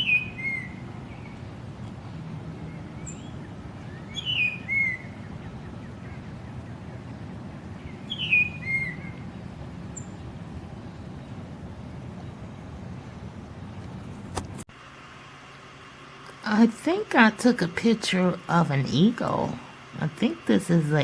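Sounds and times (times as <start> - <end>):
high whistled bird call: 0.0 - 1.4, 2.7 - 7.0, 7.8 - 9.3
low background hum: 0.0 - 21.0.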